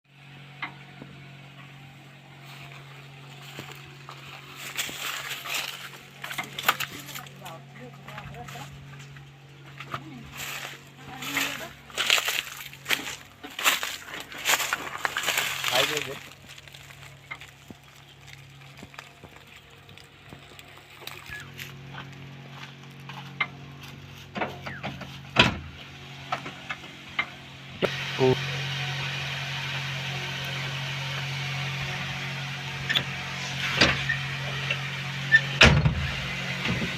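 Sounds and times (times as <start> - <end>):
diesel engine idling: 0.1 - 36.9
knocks and clanks: 24.2 - 27.4.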